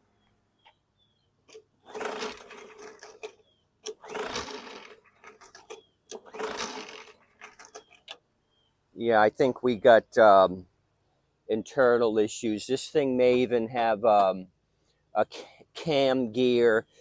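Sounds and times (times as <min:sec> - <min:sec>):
mower engine turning over: 0:01.5 - 0:08.2
recoil starter pulled: 0:01.5 - 0:08.2.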